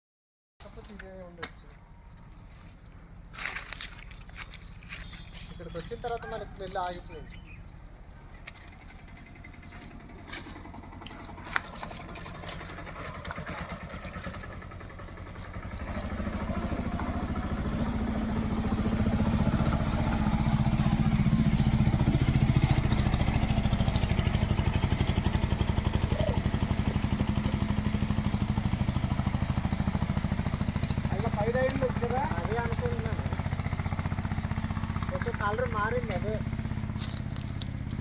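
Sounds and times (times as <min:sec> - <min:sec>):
engine humming: 0:00.6 - 0:38.0.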